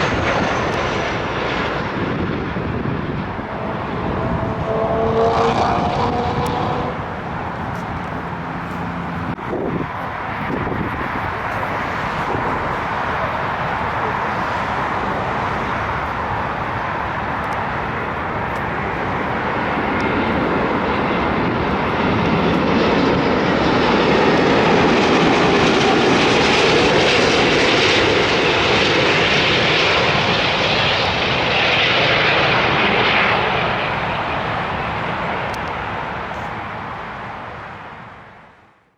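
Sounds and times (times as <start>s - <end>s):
airliner engine rush: 0.0s - 38.7s.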